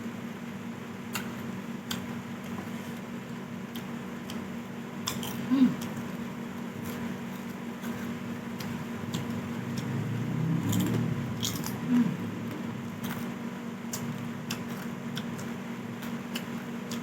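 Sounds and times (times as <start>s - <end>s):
steady low hum: 0.0s - 17.0s
person chewing: 10.6s - 17.0s.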